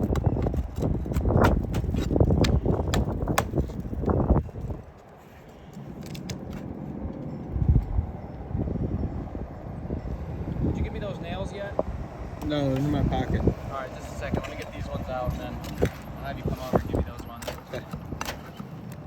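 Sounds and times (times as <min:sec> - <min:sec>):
shingles scraping and knocking: 0:00.0 - 0:06.9, 0:14.0 - 0:19.0.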